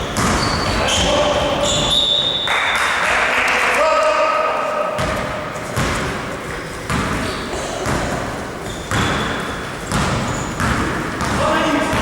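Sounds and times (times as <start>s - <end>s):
basketball bouncing on gym floor: 0.0s - 1.1s, 5.0s - 12.0s.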